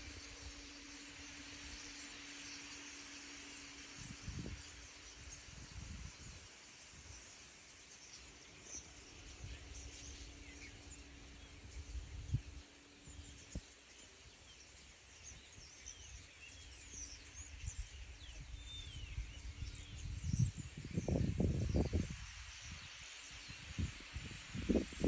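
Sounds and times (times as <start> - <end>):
small birds chirping and twittering: 0.0 - 25.0
wind rumble on microphone: 3.9 - 7.2, 9.1 - 13.7, 15.2 - 25.0.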